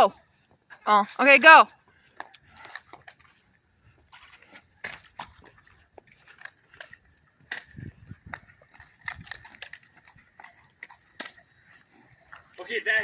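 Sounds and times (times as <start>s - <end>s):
quick footsteps: 0.1s - 13.0s.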